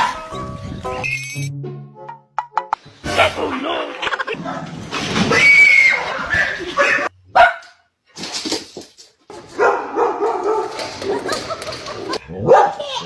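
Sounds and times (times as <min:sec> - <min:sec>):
dogs barking and yelping: 0:04.3 - 0:07.8, 0:09.4 - 0:13.0.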